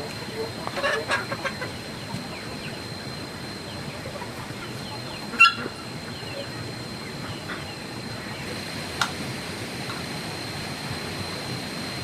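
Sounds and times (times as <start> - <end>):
outdoor background noise: 0.0 - 12.0
fowl call: 5.3 - 5.8.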